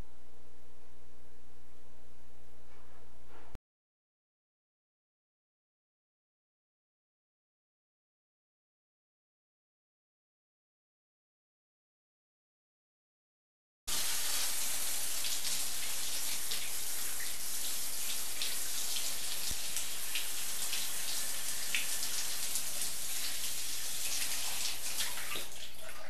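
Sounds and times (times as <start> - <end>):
running water hiss: 13.9 - 26.0.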